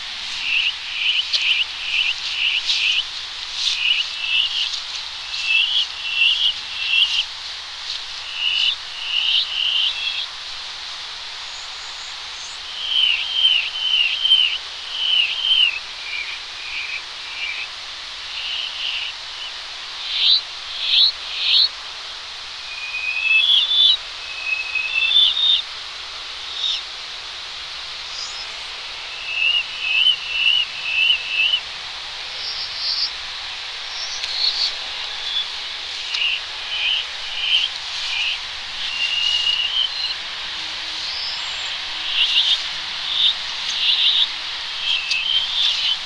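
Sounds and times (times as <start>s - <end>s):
distant road traffic hiss: 0.0s - 46.0s
reversed birdsong: 3.6s - 7.2s, 11.5s - 21.7s, 26.4s - 26.9s, 28.0s - 46.0s.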